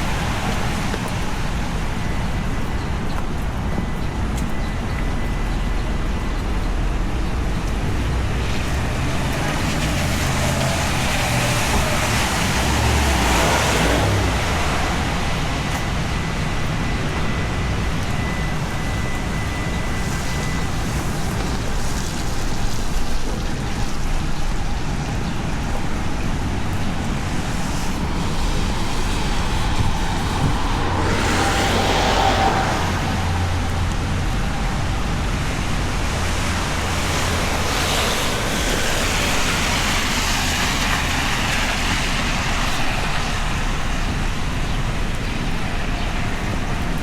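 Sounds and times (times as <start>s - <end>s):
cars passing on wet pavement: 0.0s - 47.0s
steady rain: 0.0s - 47.0s.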